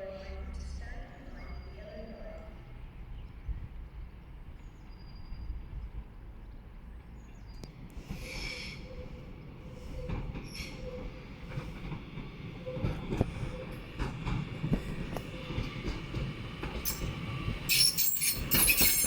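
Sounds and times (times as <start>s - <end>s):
train rumbling on rails: 0.0s - 19.0s
train wheels squealing: 4.8s - 5.8s, 8.1s - 9.2s, 9.8s - 11.3s, 16.8s - 19.0s.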